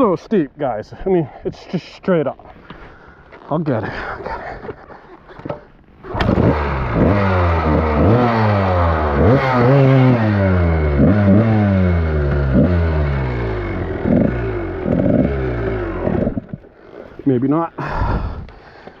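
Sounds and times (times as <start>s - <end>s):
dirt bike engine revving hard: 6.0s - 16.5s.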